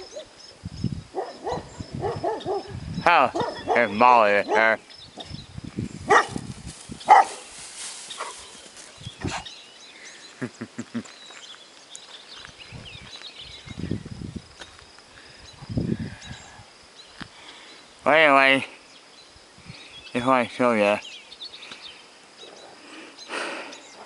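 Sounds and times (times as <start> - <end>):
dog barking: 1.2 - 4.8, 6.1 - 6.4, 7.1 - 7.4.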